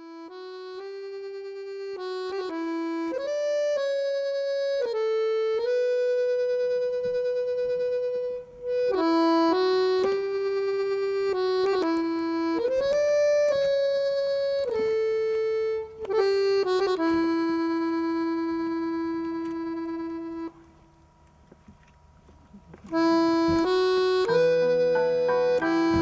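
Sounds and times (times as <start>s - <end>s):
slow solo instrumental melody: 23.0s - 26.0s.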